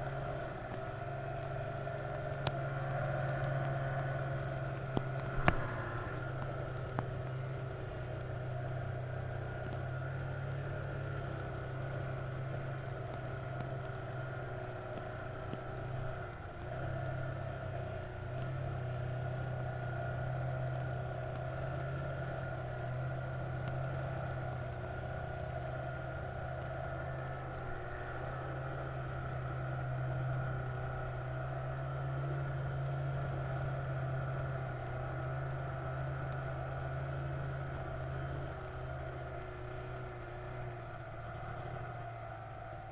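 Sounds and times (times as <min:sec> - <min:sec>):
vehicle engine humming: 0:00.0 - 0:42.9.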